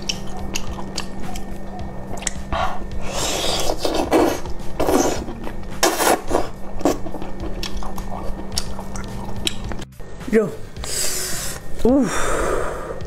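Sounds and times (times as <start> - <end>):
octopus being chewed: 0.0 - 9.9.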